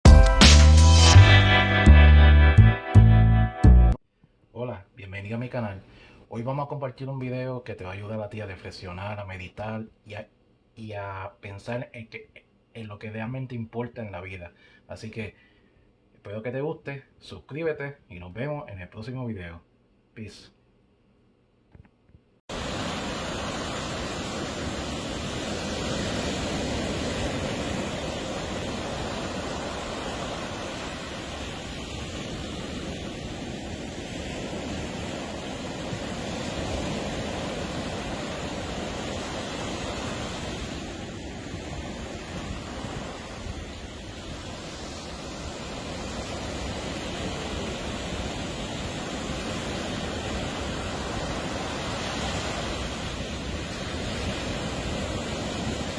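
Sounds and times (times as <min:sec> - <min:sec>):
ocean waves breaking: 0:22.5 - 0:55.9.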